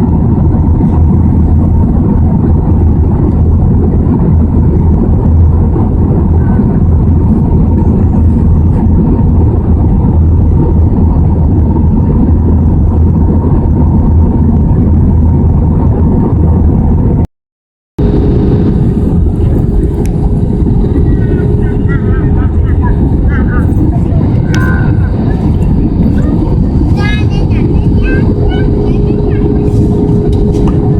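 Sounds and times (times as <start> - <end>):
aircraft cabin engine din: 0.0 - 17.2, 18.0 - 30.9
steady tone: 18.0 - 30.9.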